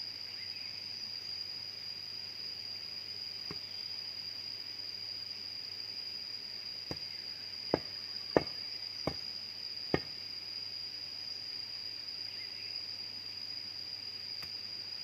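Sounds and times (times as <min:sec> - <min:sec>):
high-pitched insect drone: 0:00.0 - 0:15.0
sharp knocks: 0:07.7 - 0:09.2.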